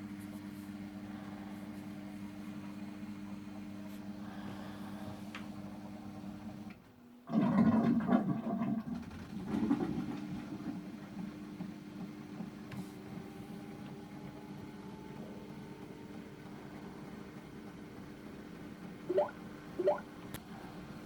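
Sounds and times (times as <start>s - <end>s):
washing machine motor humming: 9.3s - 21.0s.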